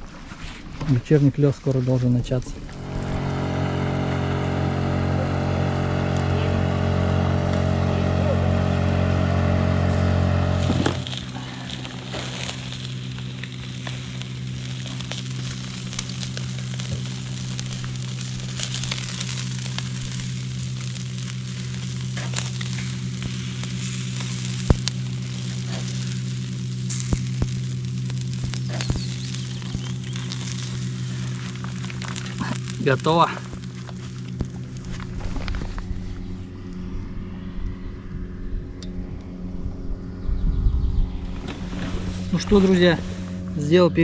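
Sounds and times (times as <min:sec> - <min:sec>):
fire crackling and popping: 0:00.0 - 0:37.3, 0:41.0 - 0:44.0
loud droning hum: 0:00.0 - 0:44.0
soft steady hum: 0:00.0 - 0:44.0
chicken sizzling over campfire: 0:00.3 - 0:36.8, 0:41.3 - 0:43.8.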